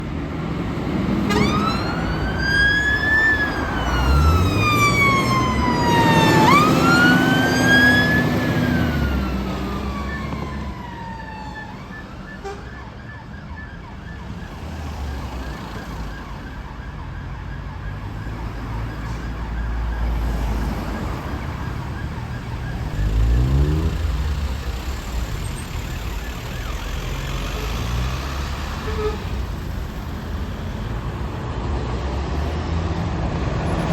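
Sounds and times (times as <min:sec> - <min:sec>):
engine revving: 0:00.0 - 0:10.9, 0:20.0 - 0:33.9
fire engine siren wailing: 0:00.6 - 0:31.5
engine rumbling: 0:14.0 - 0:33.9.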